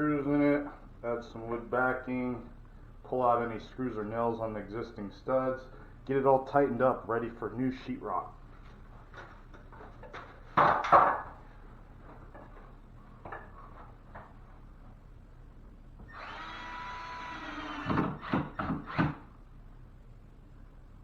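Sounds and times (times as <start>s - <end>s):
cordless drill running: 16.0s - 19.2s.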